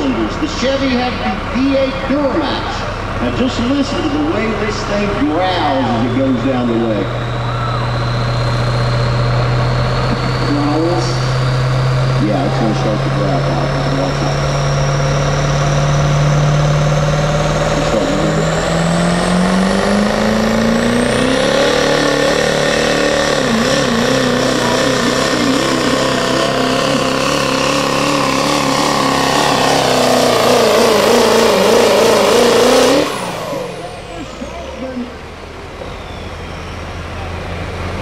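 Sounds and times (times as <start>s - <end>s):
diesel engine growling: 0.0s - 38.0s
high turbo whistle: 5.6s - 16.4s, 35.1s - 37.8s.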